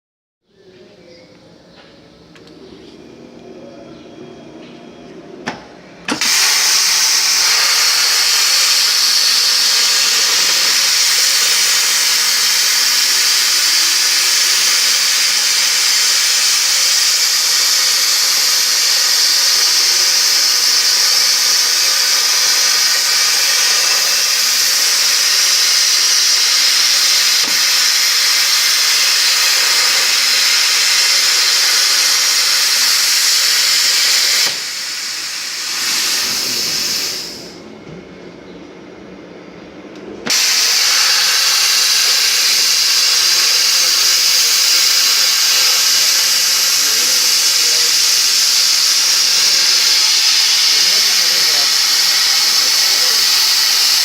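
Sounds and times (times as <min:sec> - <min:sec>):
plasma cutter high-pitched hiss: 0:06.1 - 0:37.6, 0:40.2 - 0:54.0
plasma cutter clicks: 0:40.2 - 0:54.0.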